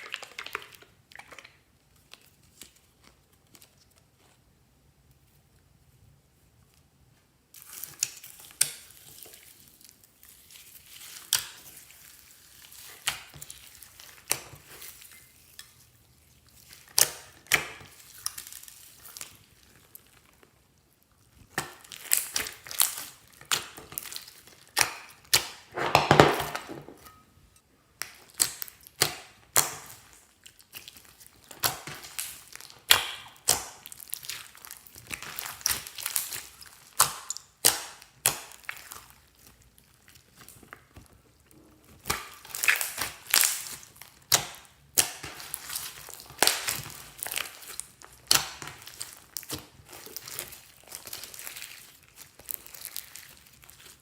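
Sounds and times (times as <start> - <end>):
slime squelch: 0.0 - 5.6, 7.5 - 27.3, 27.9 - 54.0
slime clicking and popping: 28.0 - 30.1, 31.6 - 39.0.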